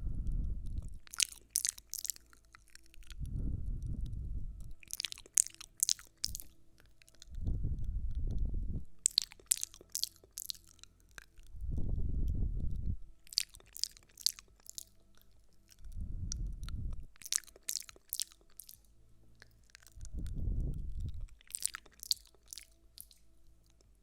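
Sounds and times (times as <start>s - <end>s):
crisp crackles: 0.8s - 3.2s, 4.7s - 7.4s, 21.0s - 24.0s.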